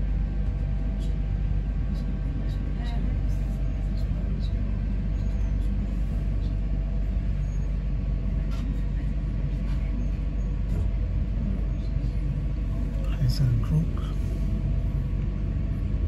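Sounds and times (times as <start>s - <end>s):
faint humming tones: 0.0s - 16.0s
train rumble inside carriage: 0.0s - 16.0s.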